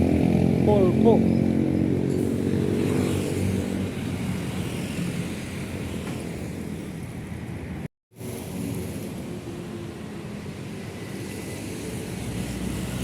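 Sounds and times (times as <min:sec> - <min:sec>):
heavy truck engine passing: 0:00.0 - 0:06.9
traffic noise: 0:00.0 - 0:13.0.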